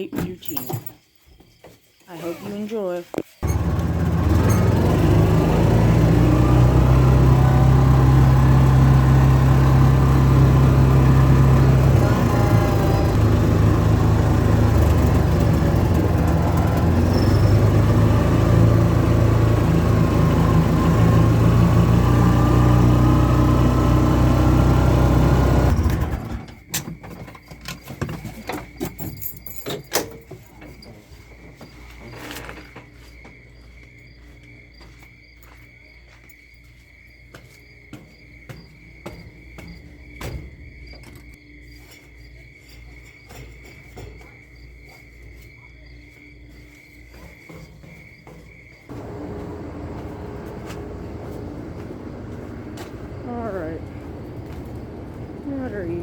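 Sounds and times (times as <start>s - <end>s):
crickets chirping: 0.0s - 3.5s, 17.0s - 17.8s, 26.4s - 56.0s
vehicle engine running: 3.4s - 26.6s, 48.9s - 56.0s.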